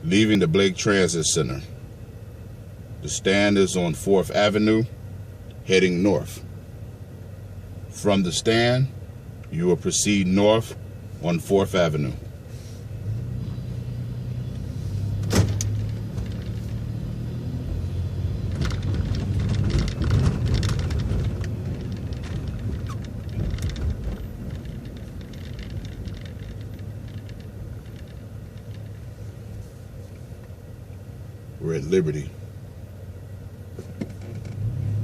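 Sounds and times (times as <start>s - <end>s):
bus engine humming: 0.0s - 35.0s
rattles and clicks: 14.5s - 30.5s, 33.8s - 34.7s.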